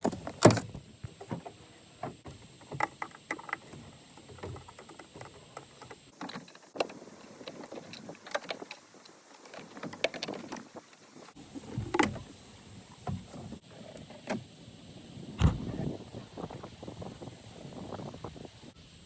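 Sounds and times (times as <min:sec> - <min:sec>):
plastic parts clicking and knocking: 0:02.2 - 0:12.2.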